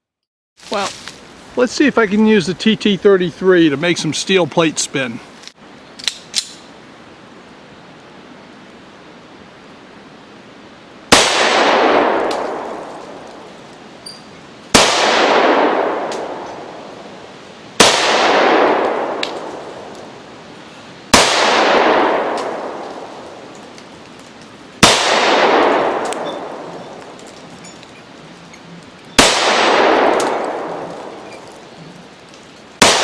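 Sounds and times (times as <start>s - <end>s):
pistol shots: 11.1s - 12.8s, 14.7s - 16.6s, 17.8s - 19.5s, 21.1s - 23.1s, 24.8s - 27.2s, 29.2s - 31.4s, 32.8s - 33.0s.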